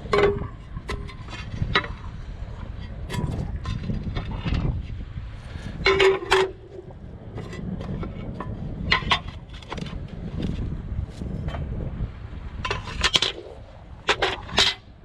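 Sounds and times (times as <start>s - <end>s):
scrap metal clanking: 0.0s - 6.8s, 12.6s - 14.9s
low rumble: 0.0s - 15.0s.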